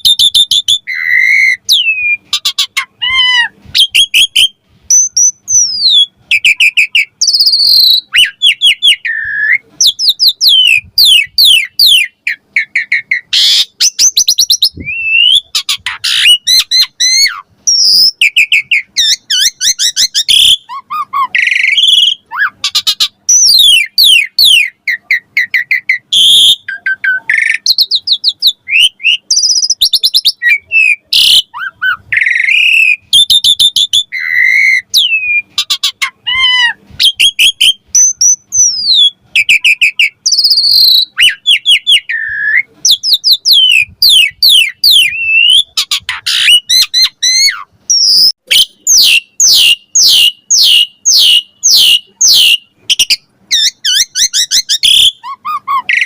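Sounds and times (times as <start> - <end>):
starling singing: 0.0 - 56.0.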